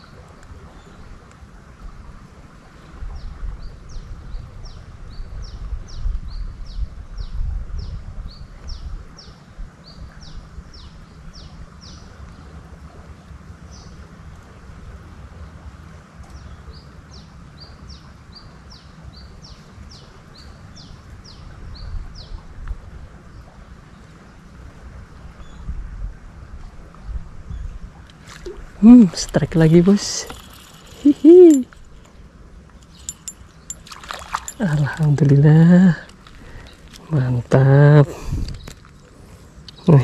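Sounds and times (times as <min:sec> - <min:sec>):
wind rumble on microphone: 0:00.0 - 0:13.9, 0:19.2 - 0:39.0
bird calling high notes: 0:29.8 - 0:31.8.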